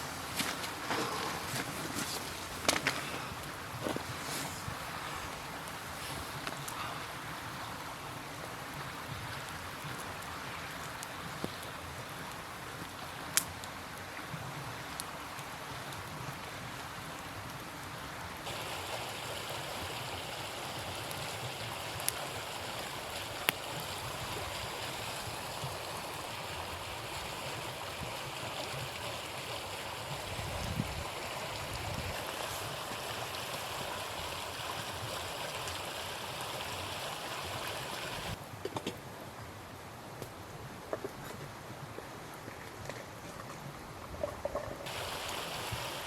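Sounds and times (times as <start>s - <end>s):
river rushing: 44.9s - 46.0s.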